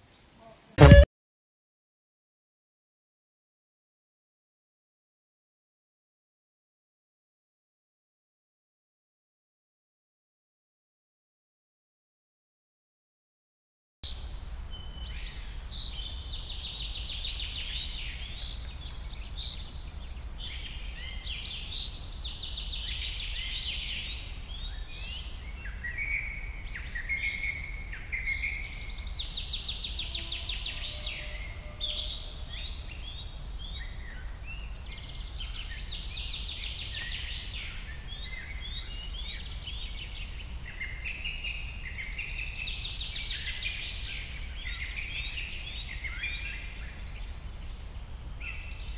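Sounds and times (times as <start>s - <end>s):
songbirds singing: 14.1s - 48.9s.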